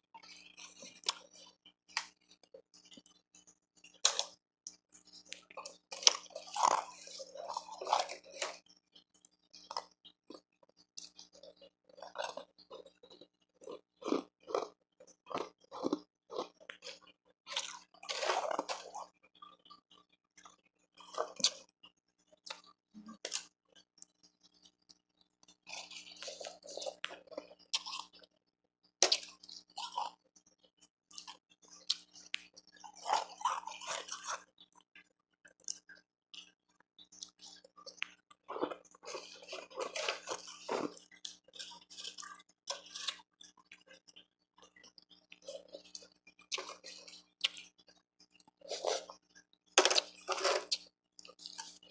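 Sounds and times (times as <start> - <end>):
crunching and chewing ice: 0.2 - 51.9.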